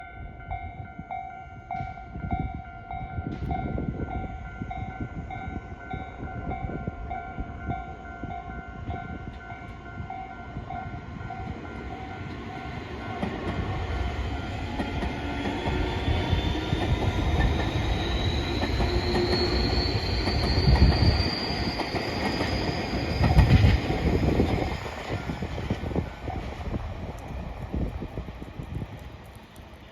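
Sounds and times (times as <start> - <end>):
train wheels rumbling over rails: 9.2 - 29.8
electric train motors whining: 13.8 - 25.8.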